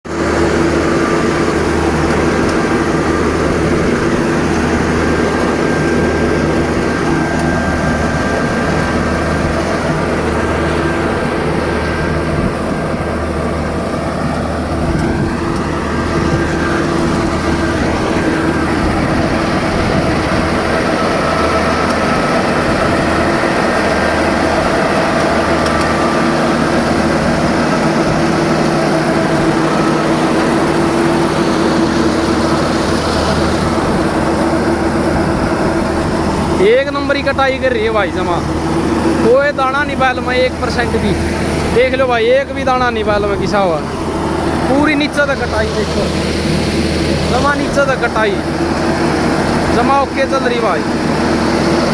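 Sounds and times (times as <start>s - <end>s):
combine harvester droning: 0.0s - 51.9s.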